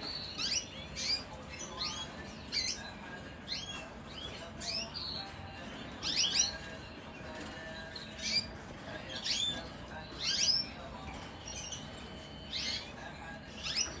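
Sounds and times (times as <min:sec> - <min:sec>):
canaries chirping: 0:00.0 - 0:14.0.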